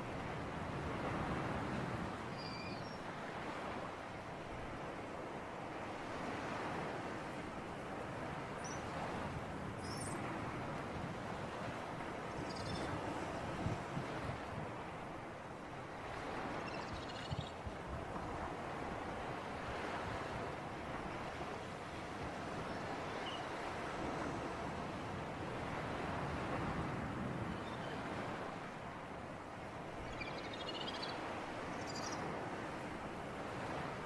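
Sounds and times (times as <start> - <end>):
waves washing: 17.7 - 30.1.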